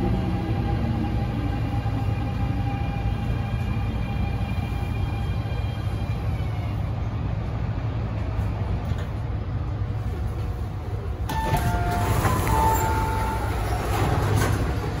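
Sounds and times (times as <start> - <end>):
train rumble on board: 0.0 - 15.0.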